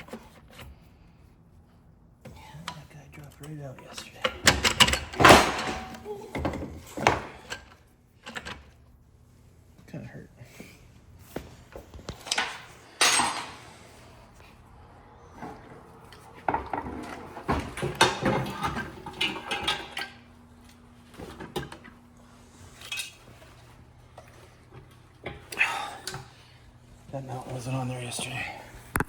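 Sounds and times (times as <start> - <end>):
metal parts clinking and knocking: 12.2 - 13.8.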